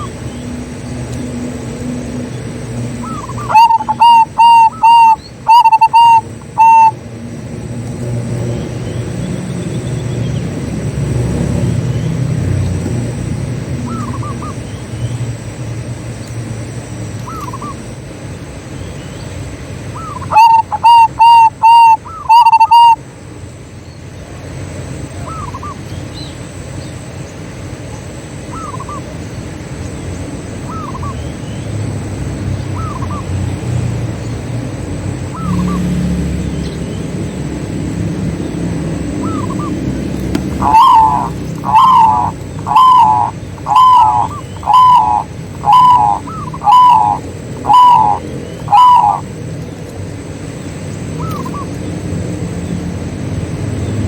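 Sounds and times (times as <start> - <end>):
doves cooing: 2.4 - 7.0, 11.1 - 14.9, 17.2 - 18.0, 19.9 - 23.0, 25.1 - 25.9, 30.6 - 36.6, 37.5 - 52.0
bird giving short notes: 40.4 - 49.2.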